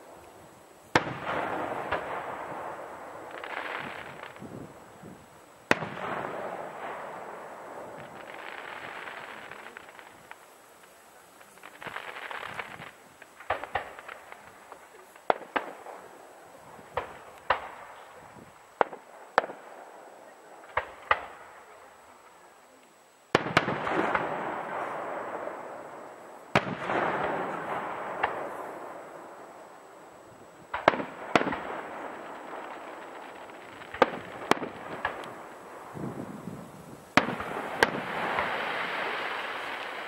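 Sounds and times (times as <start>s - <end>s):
big firework bursts with rush: 0.0s - 40.0s
firework shells bursting: 5.6s - 16.1s, 30.3s - 40.0s.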